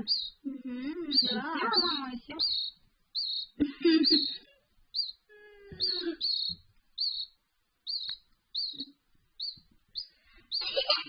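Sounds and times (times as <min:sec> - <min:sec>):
canary chick cheeping: 0:00.0 - 0:11.0.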